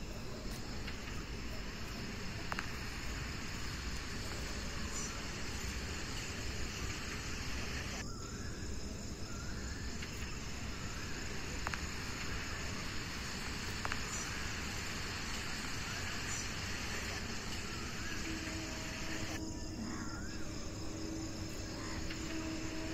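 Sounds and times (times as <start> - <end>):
steady rain falling: 0.0 - 8.0, 9.7 - 19.4, 20.6 - 22.9
faint ticks: 11.5 - 19.4.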